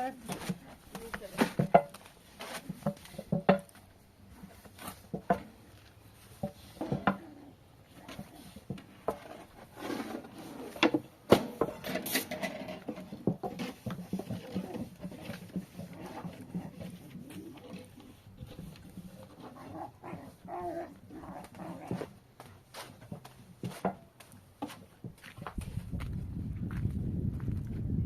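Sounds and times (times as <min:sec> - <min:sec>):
objects knocking and clattering: 0:00.0 - 0:03.9, 0:04.8 - 0:05.6, 0:06.3 - 0:07.3, 0:08.1 - 0:20.6.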